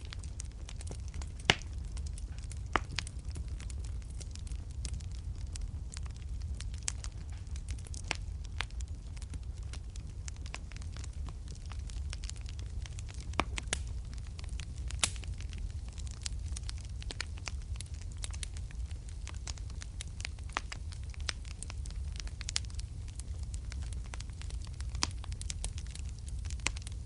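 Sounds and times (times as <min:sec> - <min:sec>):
low rumble of flames: 0:00.0 - 0:27.0
wood fire crackling and popping: 0:00.0 - 0:27.0.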